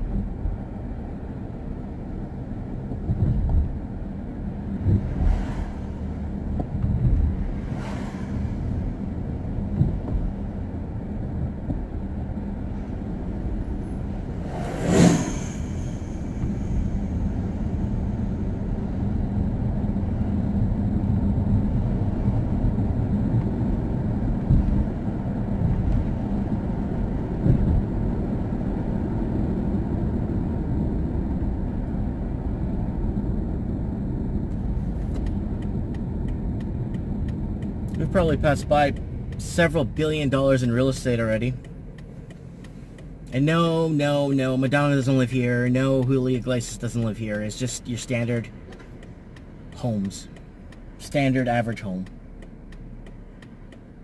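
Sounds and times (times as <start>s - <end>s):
road and engine rumble inside car: 0.0s - 54.0s
faint ticks: 41.6s - 43.4s.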